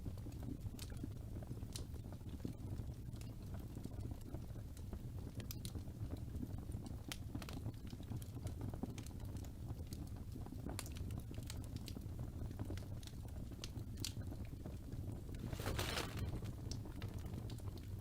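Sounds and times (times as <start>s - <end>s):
wood fire crackling: 15.2s - 18.0s.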